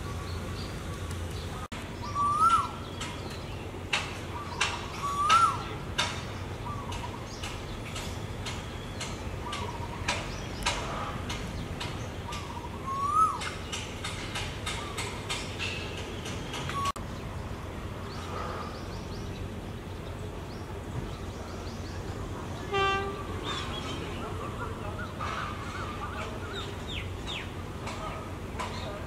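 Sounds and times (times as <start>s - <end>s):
low background noise: 0.0s - 29.0s
bird whistled call: 2.0s - 2.9s, 5.0s - 5.7s, 12.4s - 13.5s.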